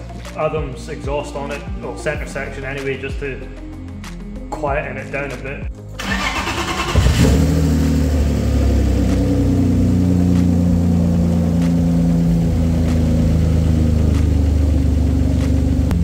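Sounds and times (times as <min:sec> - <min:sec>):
car engine idling: 0:05.8 - 0:16.0.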